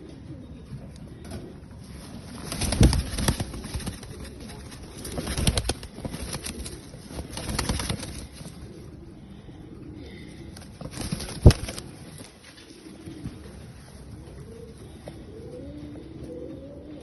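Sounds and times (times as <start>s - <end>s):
pigeons cooing: 0.0s - 17.0s
wings flapping: 1.3s - 9.0s, 10.1s - 13.5s.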